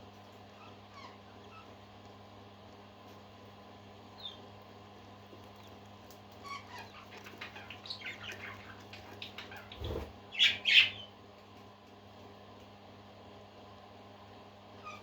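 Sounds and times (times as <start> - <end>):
parakeets chirping and chattering: 5.6 - 11.1
loud sharp bird calls: 6.5 - 11.1.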